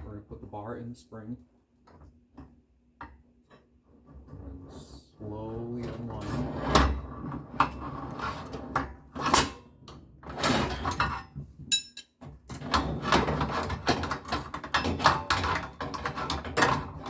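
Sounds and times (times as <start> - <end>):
steel bar knocking and clacking: 11.7 - 12.1.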